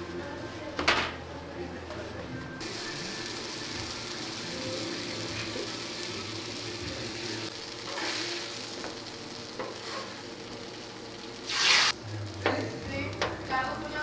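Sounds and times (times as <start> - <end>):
bread sizzling on griddle: 2.6 - 14.0
metal spatula scraping griddle: 7.8 - 8.5, 9.7 - 10.2.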